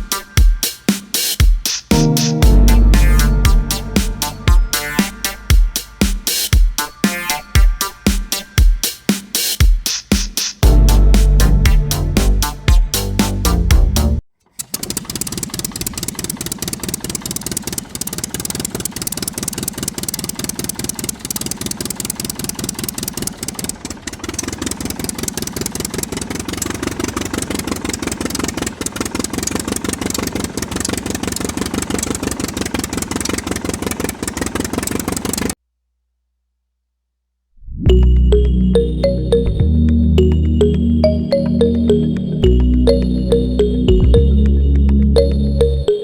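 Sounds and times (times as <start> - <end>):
small engine chugging: 14.4 - 35.6.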